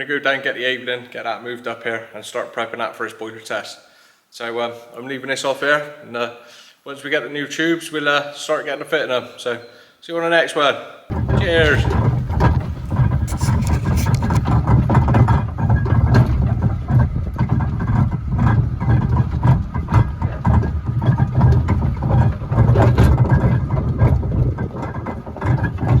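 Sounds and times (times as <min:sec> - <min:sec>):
clicks and knocks: 0:11.1 - 0:26.0
engine rumble: 0:11.1 - 0:26.0.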